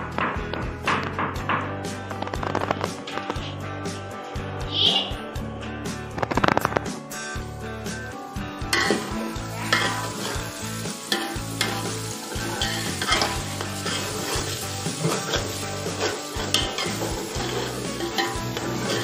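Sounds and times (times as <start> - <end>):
paste sizzling in pot: 7.4 - 19.0.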